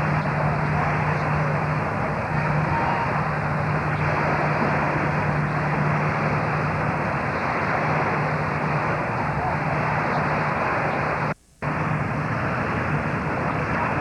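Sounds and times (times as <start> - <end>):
engine drone: 0.0 - 14.0.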